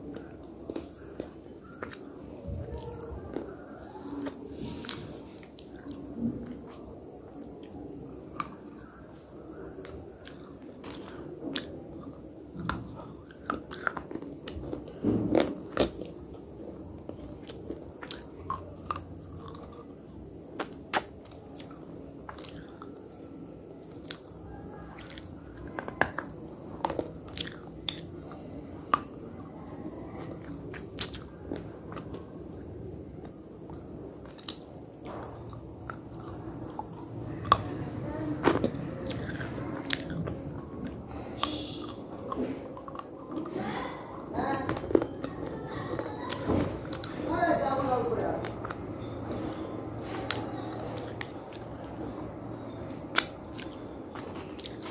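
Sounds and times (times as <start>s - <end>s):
person chewing slate: 9.8s - 23.0s, 25.0s - 32.3s, 33.2s - 43.6s, 53.1s - 54.9s.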